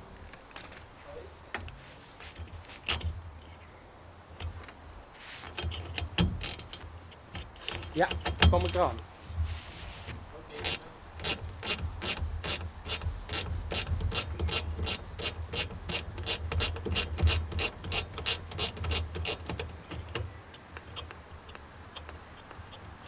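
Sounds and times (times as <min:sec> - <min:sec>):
ratchet wrench clicking: 0:10.6 - 0:20.1.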